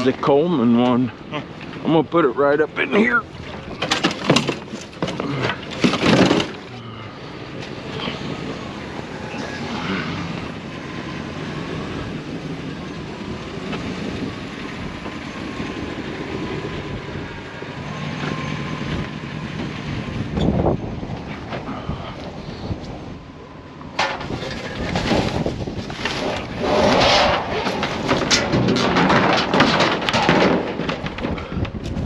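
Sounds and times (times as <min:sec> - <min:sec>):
vehicle driving road noise: 0:00.0 - 0:32.0
loud knocks and clatter: 0:03.5 - 0:06.7, 0:24.0 - 0:32.0.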